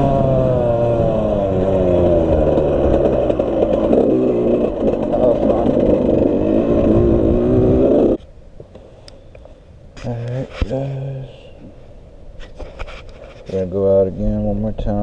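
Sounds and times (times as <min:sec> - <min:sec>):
dirt bike engine running: 0:00.0 - 0:08.2.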